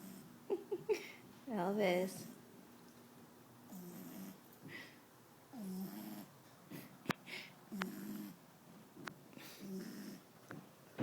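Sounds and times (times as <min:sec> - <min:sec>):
puppy snoring: 0:03.7 - 0:04.5, 0:05.5 - 0:06.9, 0:07.7 - 0:08.4, 0:09.4 - 0:10.3.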